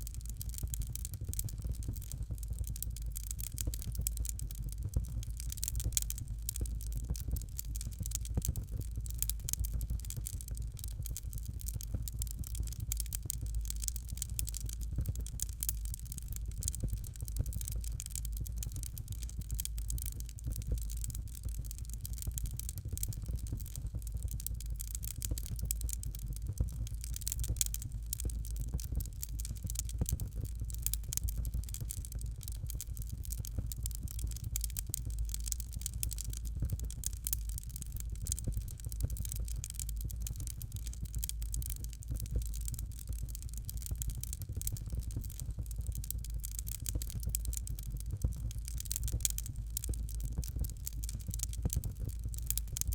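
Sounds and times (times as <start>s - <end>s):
fire crackling: 0.0s - 52.9s.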